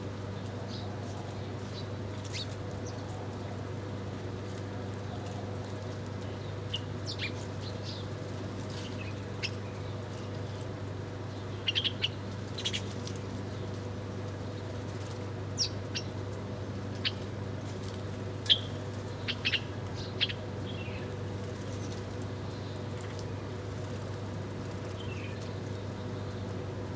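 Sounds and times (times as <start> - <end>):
small birds chirping: 6.4 - 10.7, 11.3 - 13.7, 15.6 - 16.2, 16.9 - 17.3, 18.2 - 26.4.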